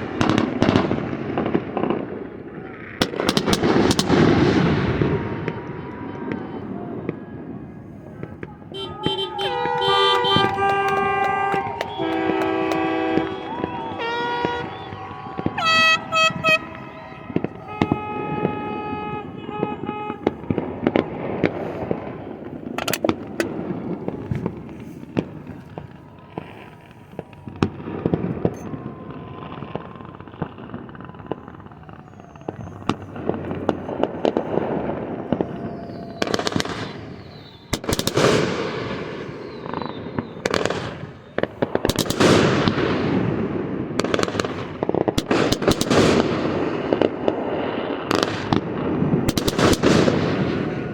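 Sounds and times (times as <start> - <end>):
fireworks popping and crackling: 0.0 - 50.9
loud firework bursts: 0.0 - 50.9
horn tooting: 8.3 - 20.7.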